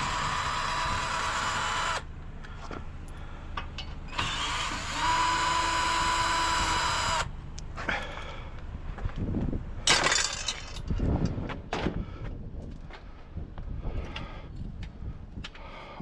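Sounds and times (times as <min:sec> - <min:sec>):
power drill whine: 0:00.0 - 0:02.1, 0:04.1 - 0:07.3.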